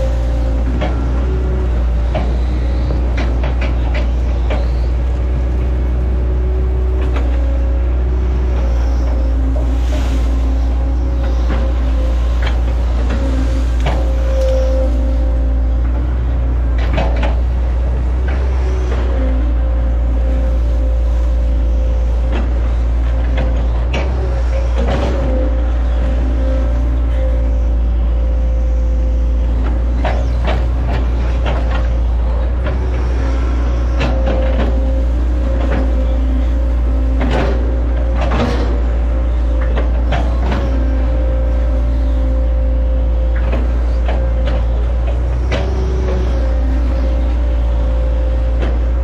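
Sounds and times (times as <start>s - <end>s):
excavator diesel engine whining: 0.0s - 49.0s
knocks and clatter: 11.2s - 19.4s.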